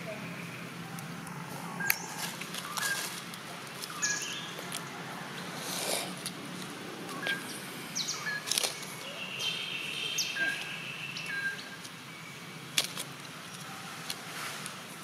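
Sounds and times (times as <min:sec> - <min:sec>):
birds chirping and whistling: 0:00.1 - 0:03.2, 0:03.8 - 0:04.7, 0:07.1 - 0:12.7.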